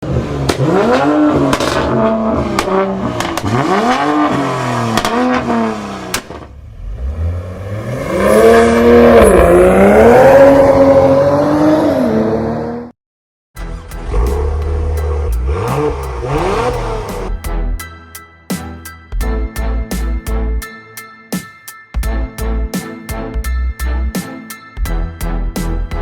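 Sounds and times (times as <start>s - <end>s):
car engine revving: 0.0s - 12.9s, 13.6s - 17.4s
exhaust cracks: 0.4s - 6.6s.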